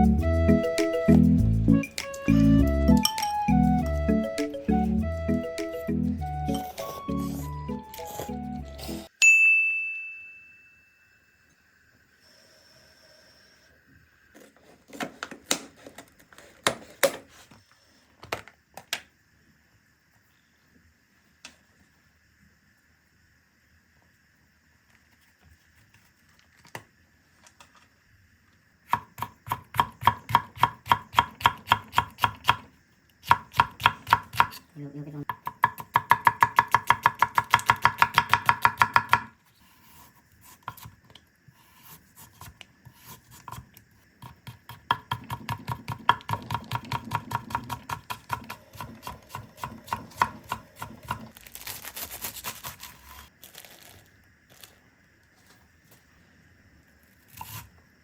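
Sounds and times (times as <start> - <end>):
knife chopping on cutting board: 33.3 - 34.6, 35.3 - 39.3, 44.5 - 51.2.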